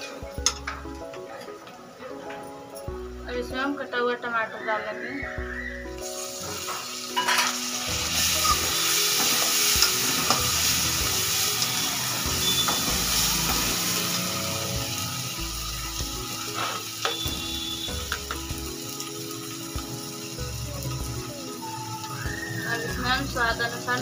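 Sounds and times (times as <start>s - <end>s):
tomatoes sizzling in oil: 3.3s - 24.0s
steel spoon scraping pan: 6.6s - 7.7s.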